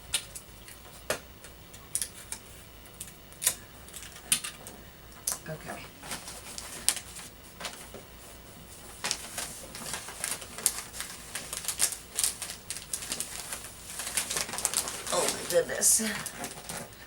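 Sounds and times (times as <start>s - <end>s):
wrapping paper crinkling: 5.9s - 17.0s.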